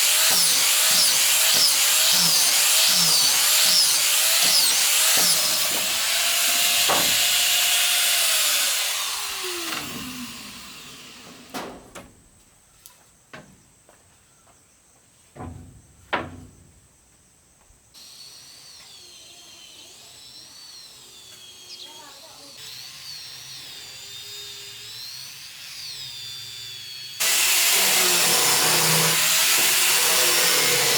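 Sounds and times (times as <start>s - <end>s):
power tool on wood: 0.0s - 11.7s, 18.0s - 30.9s
wood knocking: 4.4s - 7.6s, 15.4s - 16.7s.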